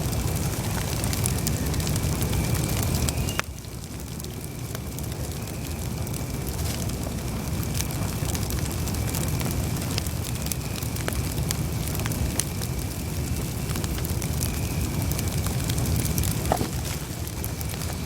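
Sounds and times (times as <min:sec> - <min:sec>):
burning wood crackling and popping: 0:00.0 - 0:18.0
low rumble of flames: 0:00.0 - 0:18.0.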